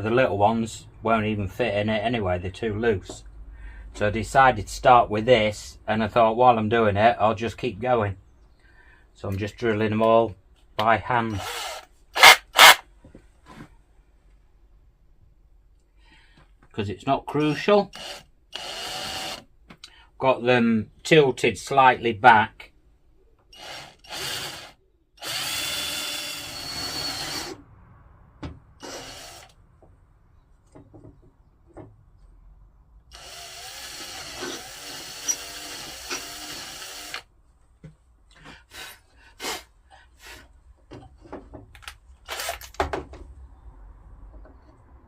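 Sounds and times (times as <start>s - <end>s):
power drill whining: 11.3s - 12.8s, 17.5s - 19.4s, 23.5s - 27.6s, 28.8s - 29.6s, 33.1s - 37.3s, 42.3s - 42.8s
knocks and clicks of handling: 30.6s - 32.3s, 40.8s - 43.4s.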